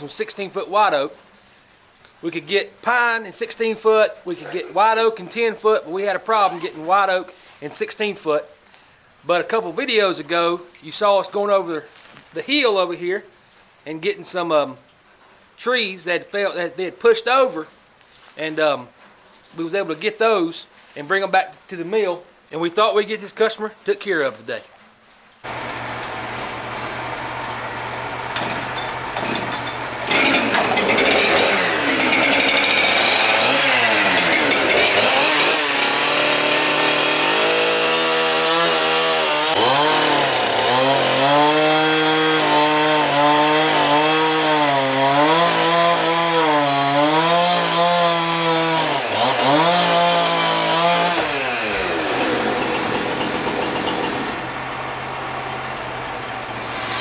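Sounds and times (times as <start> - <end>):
sawmill engine running: 25.5 - 57.0.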